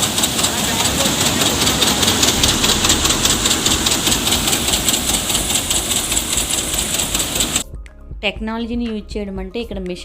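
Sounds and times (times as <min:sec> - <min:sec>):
threshing machine rattling: 0:00.0 - 0:07.6.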